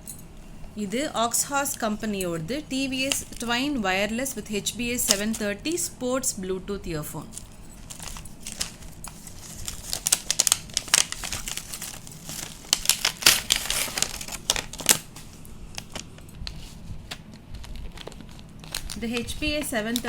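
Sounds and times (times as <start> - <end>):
packaging crinkling: 7.4 - 20.0.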